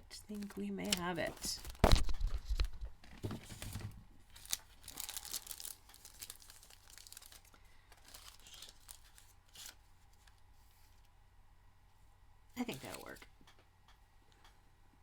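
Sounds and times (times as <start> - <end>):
plastic packets crinkling: 0.2 - 9.8.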